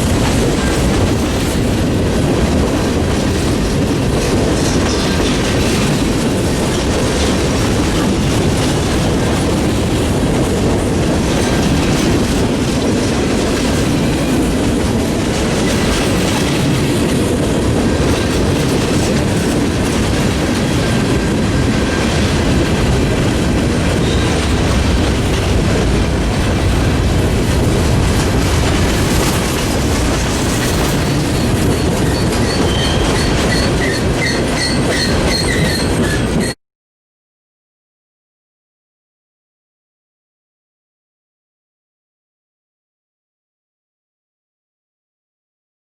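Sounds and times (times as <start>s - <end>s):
train wheels clattering over rail joints: 0.0s - 36.6s
faint high wheel squeal: 31.8s - 36.6s.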